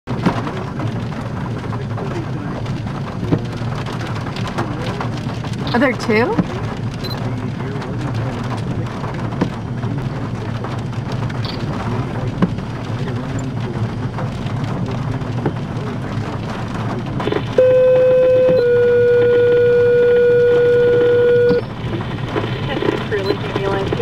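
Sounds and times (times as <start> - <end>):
low rumble: 0.1 - 24.0
steady rain: 0.1 - 24.0
loud electronic tone: 17.3 - 21.8.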